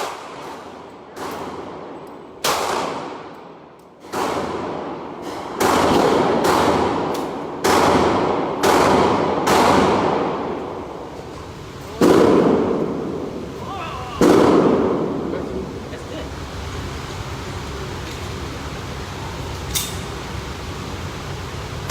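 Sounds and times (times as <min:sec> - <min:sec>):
gunshots echoing: 0:00.0 - 0:03.4, 0:04.0 - 0:10.6, 0:12.0 - 0:13.4, 0:14.2 - 0:15.3.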